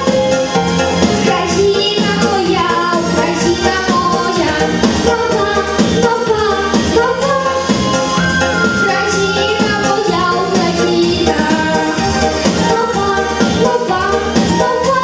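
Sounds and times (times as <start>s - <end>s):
live song with singing: 0.0s - 15.0s.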